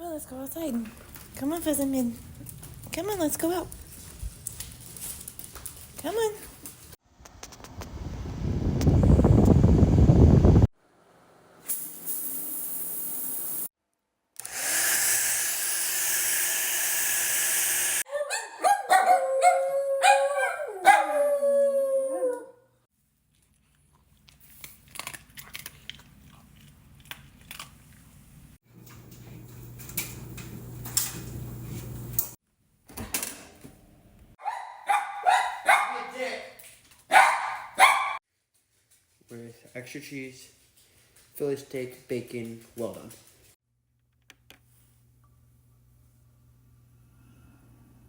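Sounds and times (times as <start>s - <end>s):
small dog howling: 18.1s - 22.6s.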